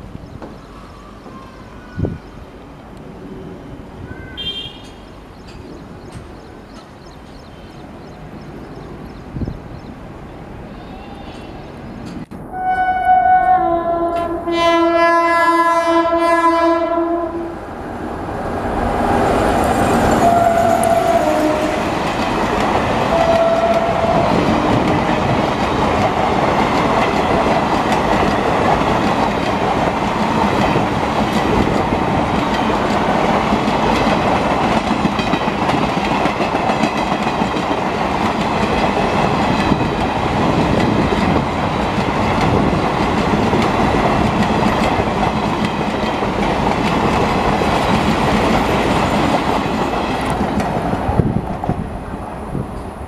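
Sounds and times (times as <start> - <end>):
train horn: 4.1 - 5.0, 12.5 - 17.6, 20.1 - 21.9, 23.1 - 24.9
train wheels clattering on rails: 4.8 - 7.4, 19.8 - 51.8.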